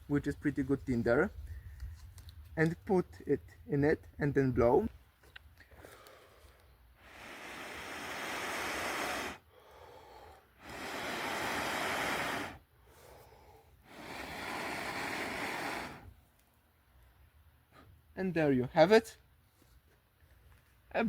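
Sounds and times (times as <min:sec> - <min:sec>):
blowing breath onto ember: 0:05.7 - 0:16.2.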